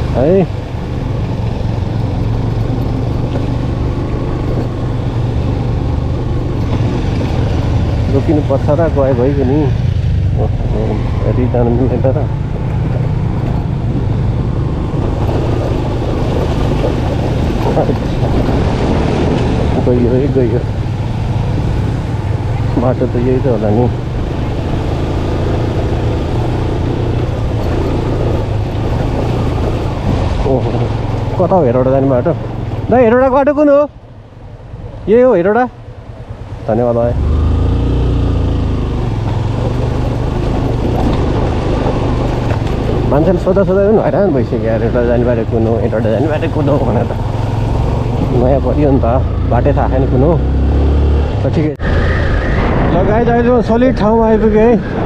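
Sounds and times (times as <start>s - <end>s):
wind rushing over microphone: 0.0s - 32.9s, 33.8s - 55.0s
motorcycle engine running: 0.0s - 33.2s, 35.8s - 51.1s.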